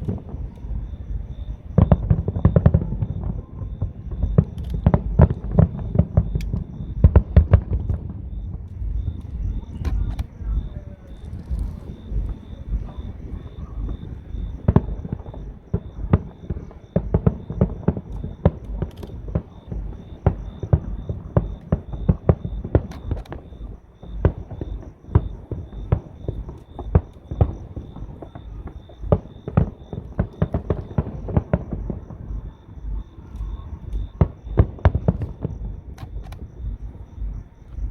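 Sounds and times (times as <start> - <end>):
fireworks bangs and thumps: 0.0 - 37.9.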